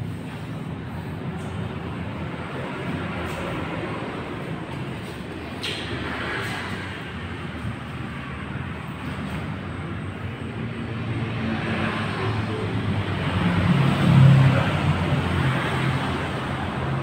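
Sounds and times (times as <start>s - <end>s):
vehicle passing by: 10.6s - 17.0s.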